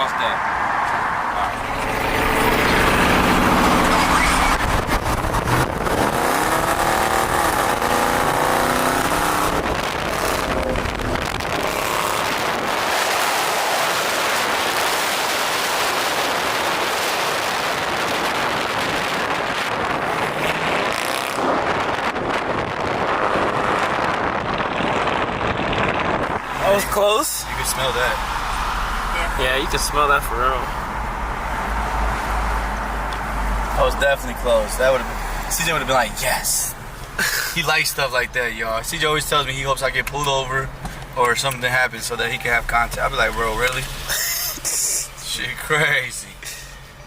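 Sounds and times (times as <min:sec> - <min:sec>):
wind and road rush: 0:00.0 - 0:47.0
car engine accelerating hard: 0:00.9 - 0:36.2.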